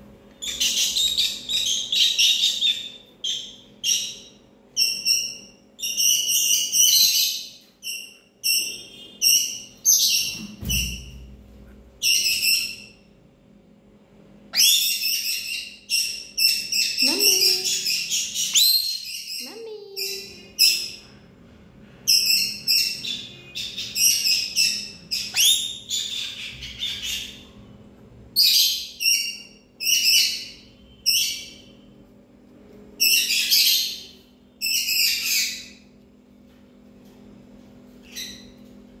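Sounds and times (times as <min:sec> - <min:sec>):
parrot screeching chirps: 0:14.5 - 0:21.0, 0:22.2 - 0:27.4.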